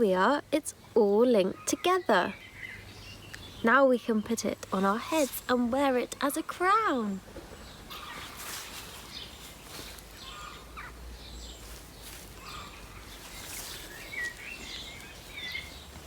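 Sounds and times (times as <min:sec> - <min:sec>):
faint bird chirps: 0:07.1 - 0:16.0.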